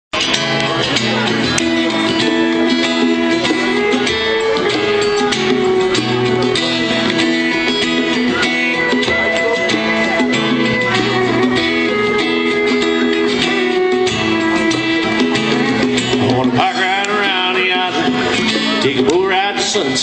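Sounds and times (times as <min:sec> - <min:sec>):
strummed guitar: 0:00.1 - 0:20.0.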